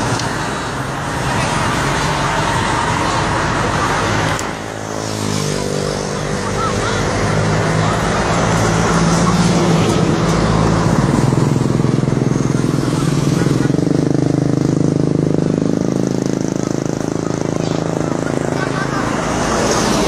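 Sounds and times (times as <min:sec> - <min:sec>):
street traffic noise: 0:00.0 - 0:20.0
motorcycle engine running: 0:05.9 - 0:20.0.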